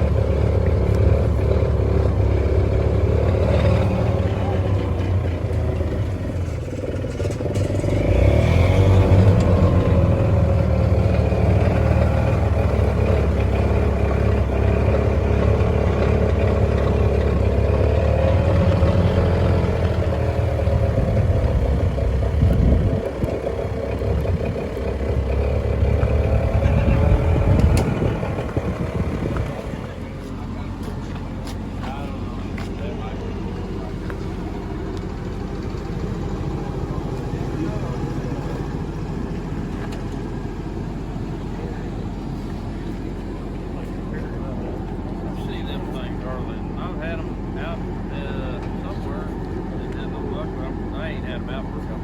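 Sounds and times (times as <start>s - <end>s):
vehicle engine revving: 0.0s - 52.0s
low rumble: 18.6s - 48.8s.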